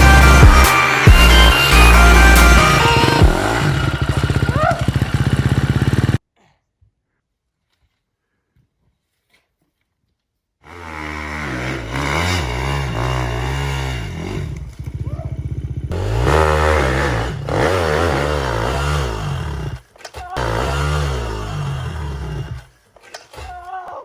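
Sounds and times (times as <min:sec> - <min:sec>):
dirt bike engine revving: 0:00.0 - 0:06.2, 0:10.7 - 0:22.8.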